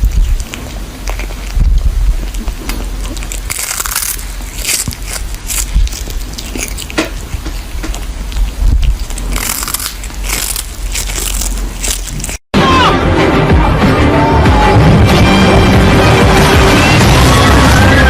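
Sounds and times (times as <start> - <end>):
crisp food crunching: 0.0 - 12.4.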